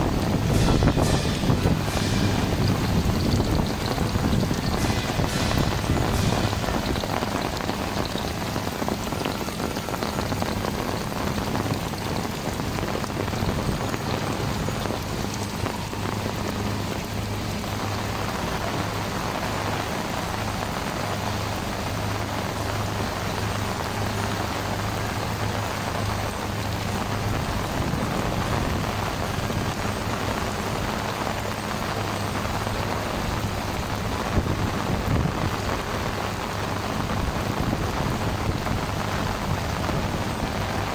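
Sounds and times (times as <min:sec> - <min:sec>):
low steady hum: 0:00.0 - 0:20.9
heavy rain drumming: 0:00.0 - 0:40.9.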